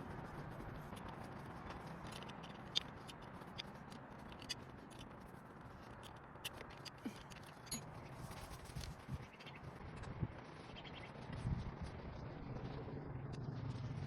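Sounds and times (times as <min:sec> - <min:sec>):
sharp ticks: 0:00.1 - 0:07.8
metal tools clicking and scraping: 0:06.1 - 0:08.0.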